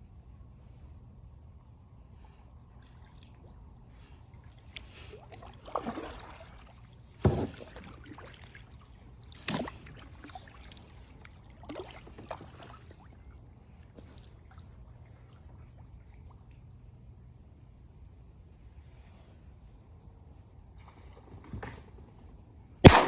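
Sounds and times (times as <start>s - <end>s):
kayak paddle splashes: 2.8s - 16.8s
thump: 7.2s - 7.7s.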